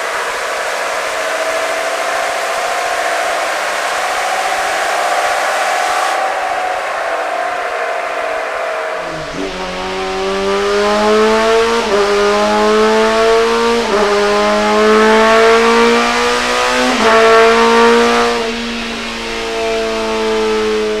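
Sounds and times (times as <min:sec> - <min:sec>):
diesel engine accelerating: 0:09.0 - 0:21.0.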